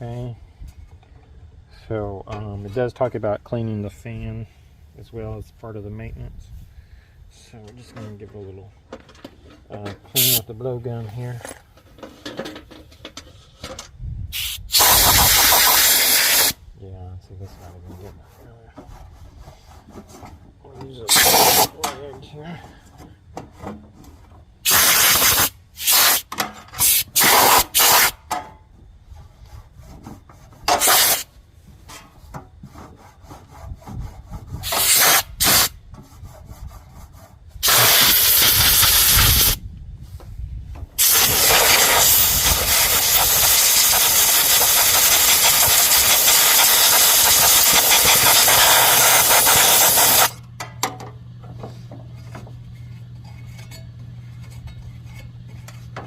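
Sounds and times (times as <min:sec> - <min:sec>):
compressed air blowgun hissing: 0:10.2 - 0:10.4, 0:14.3 - 0:16.6, 0:21.1 - 0:21.7, 0:24.6 - 0:28.2, 0:30.7 - 0:31.3, 0:34.6 - 0:35.8, 0:37.6 - 0:39.6, 0:41.0 - 0:50.4
low steady hum: 0:50.2 - 0:56.0.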